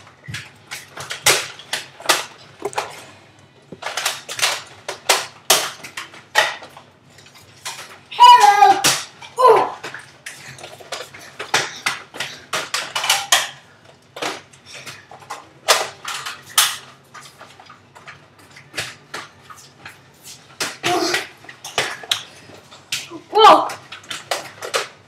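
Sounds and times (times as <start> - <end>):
person shouting: 8.1 - 9.8, 23.1 - 23.8.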